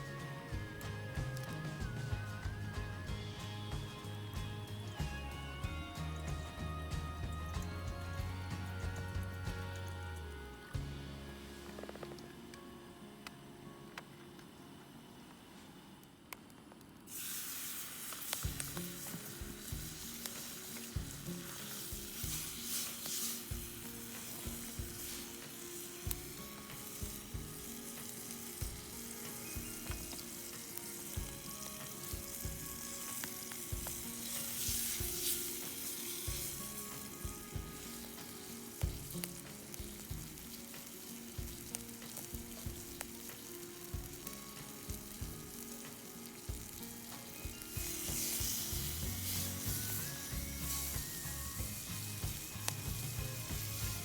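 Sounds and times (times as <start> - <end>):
food sizzling in a pan: 0.0 - 5.7, 17.0 - 54.0.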